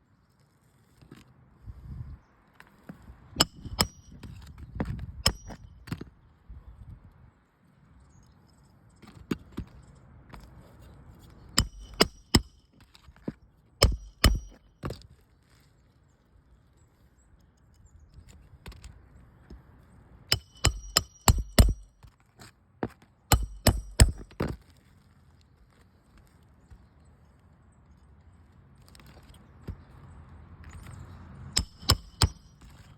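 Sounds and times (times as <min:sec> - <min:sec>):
hammer striking nails: 0:03.4 - 0:04.2, 0:05.2 - 0:05.7, 0:11.6 - 0:12.6, 0:13.8 - 0:14.6, 0:20.3 - 0:22.1, 0:23.3 - 0:24.5, 0:31.6 - 0:32.9.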